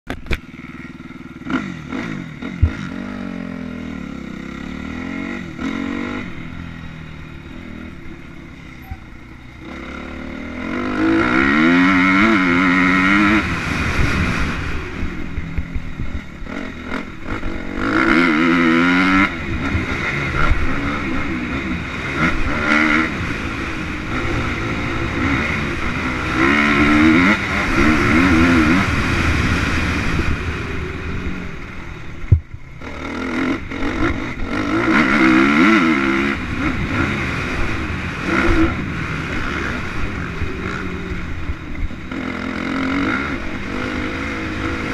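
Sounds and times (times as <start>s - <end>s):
motocross engines revving: 0.2s - 32.0s, 32.8s - 44.9s.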